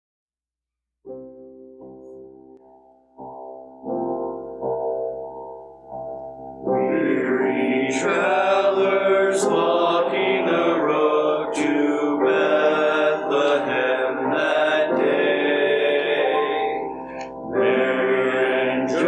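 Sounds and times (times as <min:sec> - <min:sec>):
choir singing with accompaniment: 0:06.7 - 0:19.0.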